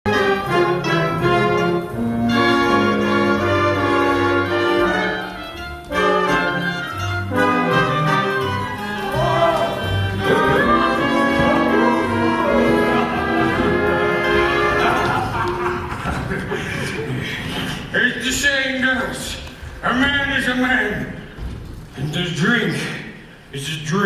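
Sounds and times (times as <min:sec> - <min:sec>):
orchestral music with brass: 0:00.1 - 0:16.3.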